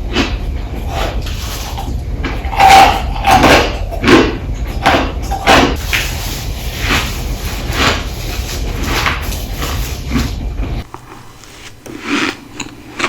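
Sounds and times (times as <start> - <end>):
person crunching ice: 10.8 - 13.0.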